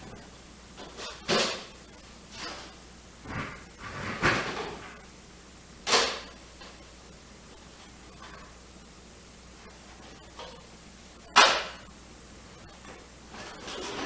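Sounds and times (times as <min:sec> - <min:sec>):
rattling scrape: 0:03.2 - 0:05.0.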